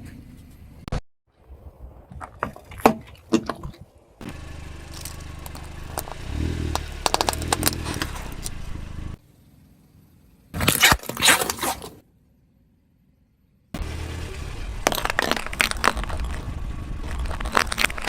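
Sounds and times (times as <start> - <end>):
tyre crushing objects: 2.1 - 8.6, 10.6 - 12.0, 14.8 - 18.0
car engine running: 4.2 - 9.2, 13.8 - 18.0.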